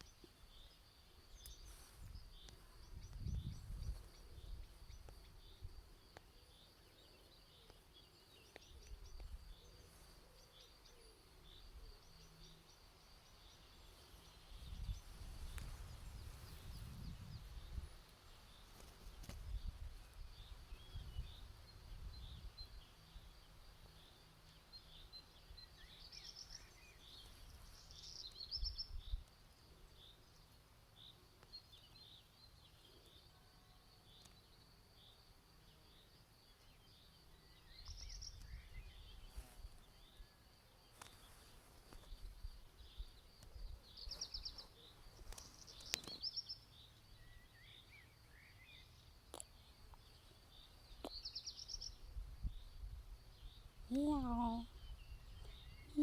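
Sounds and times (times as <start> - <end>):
birds chirping: 42.4 - 52.7.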